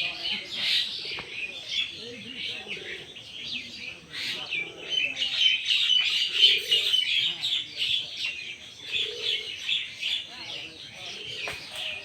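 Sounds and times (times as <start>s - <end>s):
low cooing calls: 0.0s - 12.0s
small birds chirping: 0.0s - 12.0s.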